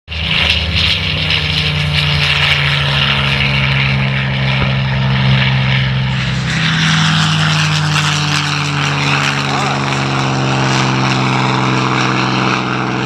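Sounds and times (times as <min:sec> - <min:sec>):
propeller aircraft engine running: 0:00.1 - 0:13.0.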